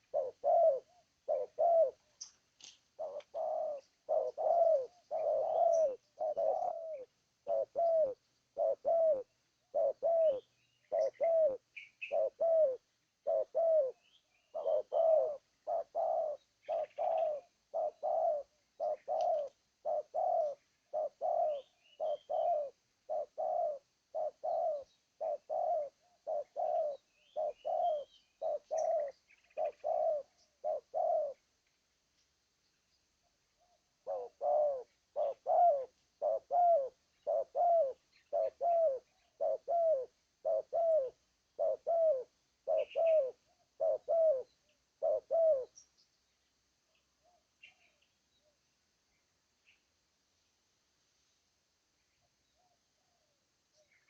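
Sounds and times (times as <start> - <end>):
dove cooing: 0.0 - 2.4, 3.0 - 31.4, 33.6 - 45.8
small birds chirping: 0.0 - 50.0, 52.0 - 54.0.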